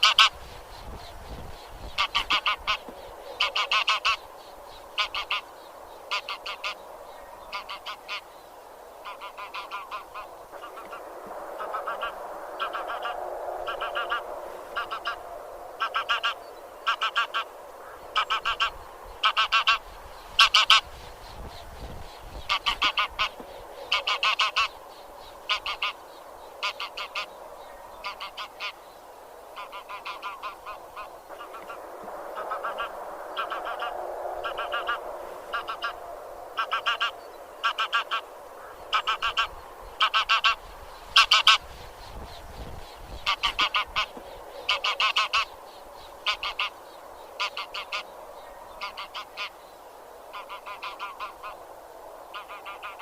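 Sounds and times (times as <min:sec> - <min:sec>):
geese honking: 0:00.0 - 0:00.4, 0:01.9 - 0:04.3, 0:04.9 - 0:05.5, 0:06.1 - 0:06.8, 0:07.4 - 0:08.3, 0:09.0 - 0:15.2, 0:15.8 - 0:20.9, 0:22.4 - 0:24.8, 0:25.4 - 0:26.0, 0:26.6 - 0:27.3, 0:28.0 - 0:28.8, 0:29.6 - 0:31.8, 0:32.4 - 0:36.0, 0:36.6 - 0:41.7, 0:43.2 - 0:45.5, 0:46.2 - 0:46.8, 0:47.4 - 0:48.1, 0:48.8 - 0:49.6, 0:50.3 - 0:51.6, 0:52.3 - 0:53.0
low-pitched goose chatter: 0:00.0 - 0:00.4, 0:01.9 - 0:04.2, 0:05.0 - 0:05.5, 0:06.1 - 0:06.8, 0:07.4 - 0:08.3, 0:09.0 - 0:15.2, 0:15.8 - 0:19.8, 0:20.4 - 0:20.9, 0:22.4 - 0:24.8, 0:25.5 - 0:26.0, 0:26.6 - 0:27.3, 0:28.0 - 0:28.8, 0:29.6 - 0:31.8, 0:32.4 - 0:36.0, 0:36.6 - 0:40.6, 0:41.2 - 0:41.6, 0:43.2 - 0:45.5, 0:46.2 - 0:46.8, 0:47.4 - 0:48.1, 0:48.8 - 0:49.6, 0:50.3 - 0:51.6, 0:52.3 - 0:53.0.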